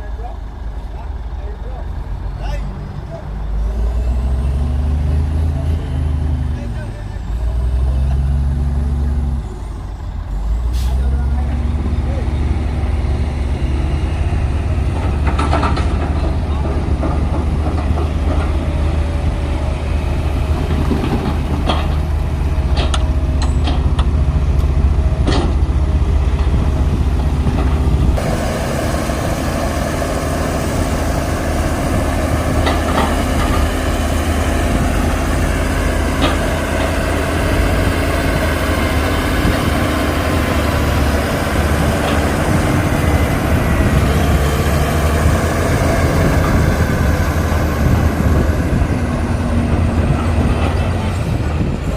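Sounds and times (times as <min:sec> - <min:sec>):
diesel machinery running: 0:00.0 - 0:51.9
sharp metallic clanks: 0:21.0 - 0:24.1.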